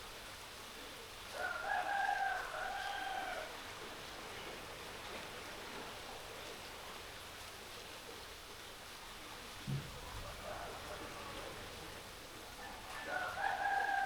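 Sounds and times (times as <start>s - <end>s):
rooster crowing: 1.4s - 3.5s, 12.6s - 14.0s.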